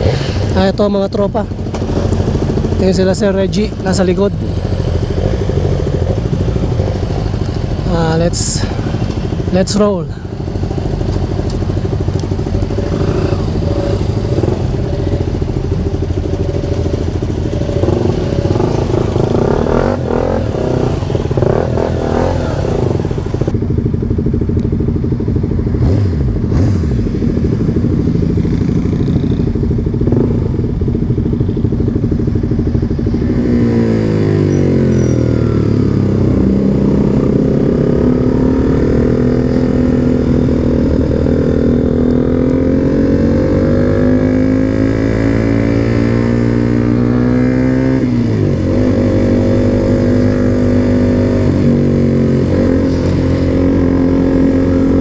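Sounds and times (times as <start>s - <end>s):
motorcycle engines: 0.0s - 55.0s.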